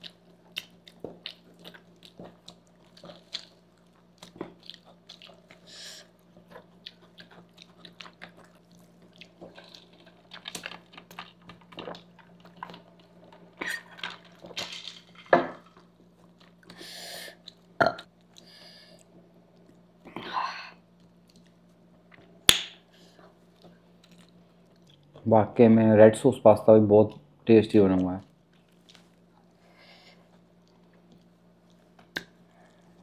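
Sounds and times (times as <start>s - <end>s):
chewing with wet mouth smacks: 0.0s - 13.9s, 21.0s - 22.4s, 23.3s - 25.2s, 28.4s - 29.6s.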